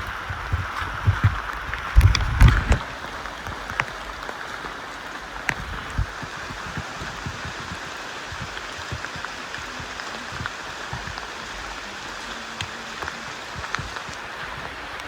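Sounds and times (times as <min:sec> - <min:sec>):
low thumps: 0:00.0 - 0:03.7
rushing water: 0:00.0 - 0:15.0.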